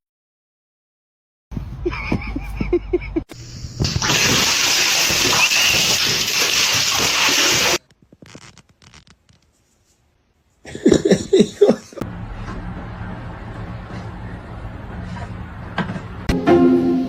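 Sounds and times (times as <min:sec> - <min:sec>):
running water rushing: 0:04.0 - 0:07.8.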